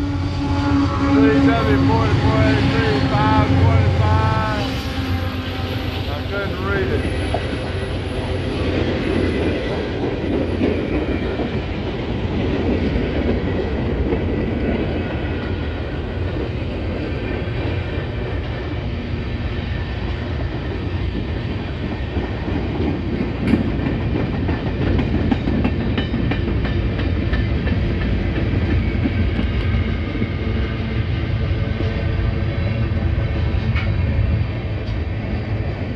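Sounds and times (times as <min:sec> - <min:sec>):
train wheels rumbling on rail: 0:00.0 - 0:35.9.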